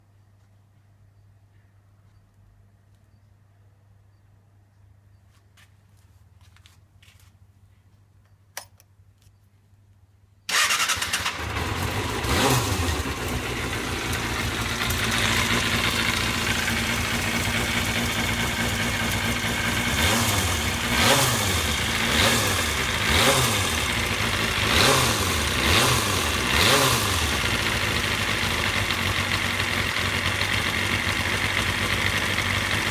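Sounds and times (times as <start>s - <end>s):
motorcycle engine idling with rattle: 6.5s - 32.9s.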